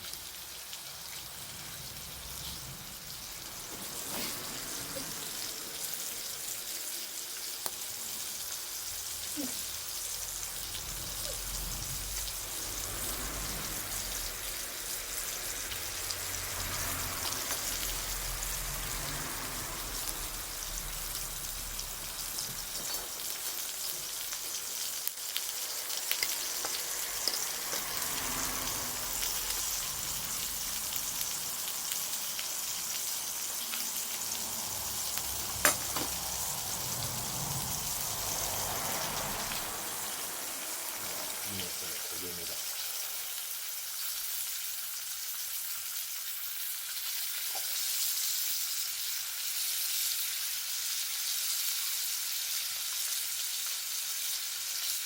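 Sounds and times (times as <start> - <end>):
bonfire hissing and crackling: 0.0 - 55.0
sharp pop of burning wood: 35.6 - 36.2.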